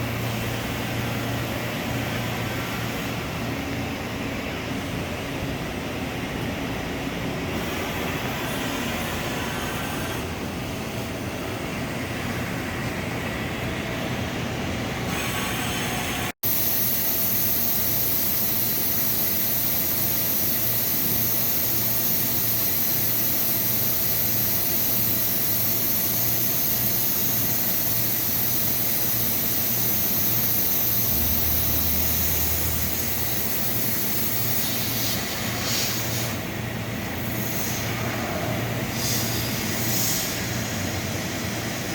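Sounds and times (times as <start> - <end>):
high hiss: 16.5 - 41.9
machining center running: 28.6 - 35.6.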